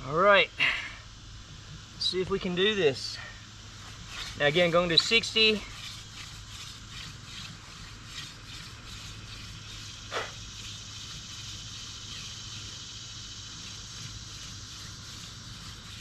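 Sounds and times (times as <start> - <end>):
hand drill spindle rubbing: 3.8 - 12.8, 13.5 - 16.0.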